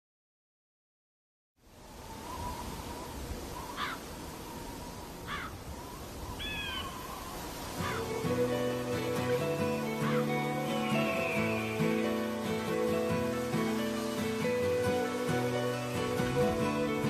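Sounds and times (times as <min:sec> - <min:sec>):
bird calls: 0:02.0 - 0:17.0
acoustic guitar music: 0:07.8 - 0:17.0.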